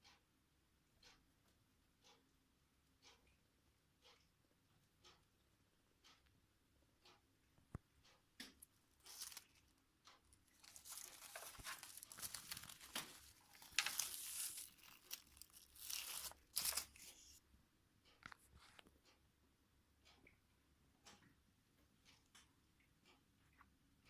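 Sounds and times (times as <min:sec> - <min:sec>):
small clicks: 0:07.0 - 0:17.4
craft material crinkling and tearing: 0:09.0 - 0:09.6, 0:10.6 - 0:17.4.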